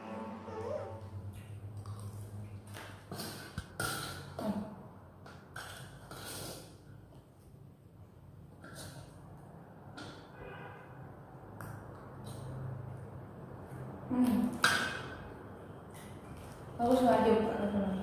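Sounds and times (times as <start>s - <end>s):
crunching and chewing food: 1.3s - 4.3s, 15.8s - 17.0s.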